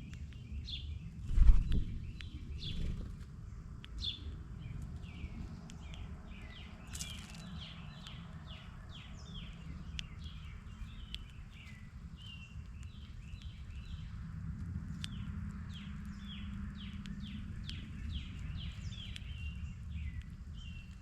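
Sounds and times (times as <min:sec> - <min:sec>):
songbirds chirping: 0:00.0 - 0:21.0
steady low rumble: 0:00.0 - 0:21.0.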